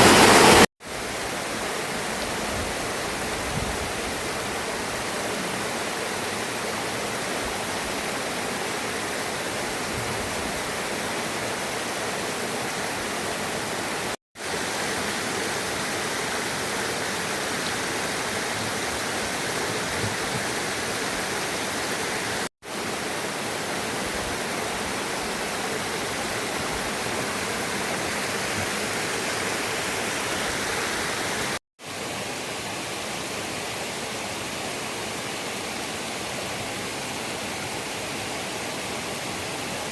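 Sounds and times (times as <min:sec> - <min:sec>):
rushing flowing water: 0:00.0 - 0:39.9.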